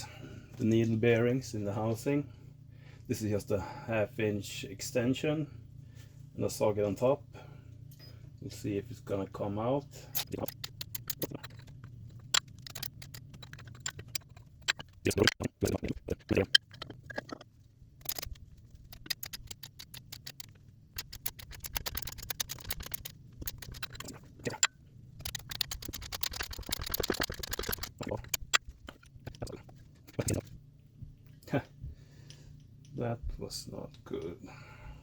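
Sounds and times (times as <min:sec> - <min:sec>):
rattling and scraping: 0:10.1 - 0:30.6.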